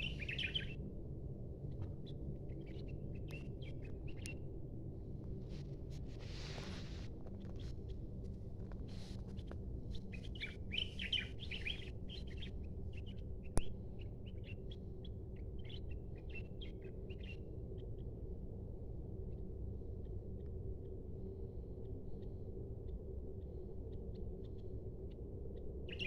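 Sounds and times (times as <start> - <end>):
small birds chirping: 0.0 - 0.7, 10.0 - 13.7.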